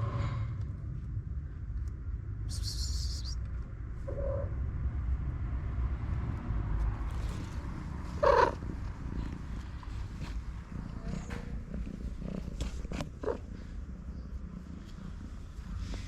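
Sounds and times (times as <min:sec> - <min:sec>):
steady low rumble: 0:00.0 - 0:16.0
cats meowing: 0:08.1 - 0:08.7.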